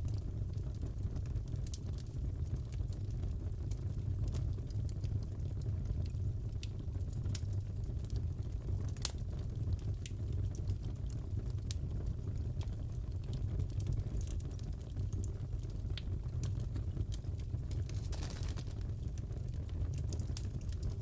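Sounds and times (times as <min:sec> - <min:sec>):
fireplace crackling: 0:05.2 - 0:11.8, 0:12.4 - 0:21.0.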